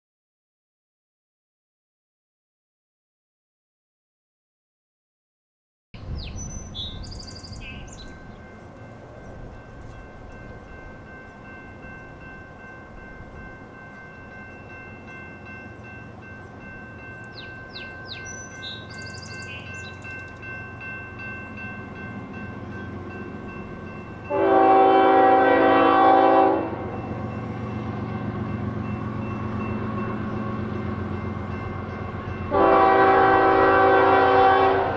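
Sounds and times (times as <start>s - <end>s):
faint birds chirping: 6.0s - 9.9s, 15.6s - 20.7s
train rumble: 6.0s - 34.9s
locomotive horn blast: 24.2s - 27.1s, 32.4s - 34.9s.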